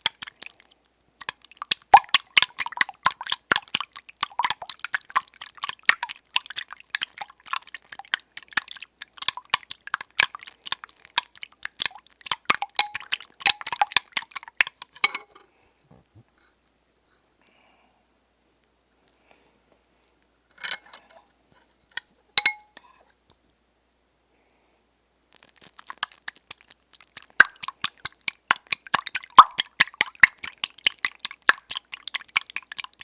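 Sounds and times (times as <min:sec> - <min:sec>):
eggs beaten in a bowl: 0:00.0 - 0:15.4, 0:25.7 - 0:33.0.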